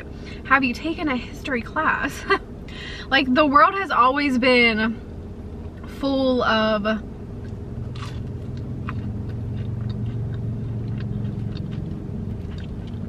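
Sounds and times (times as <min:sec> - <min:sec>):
low hum in car cabin: 0:00.0 - 0:13.0
chewing mouth sounds: 0:07.4 - 0:13.0.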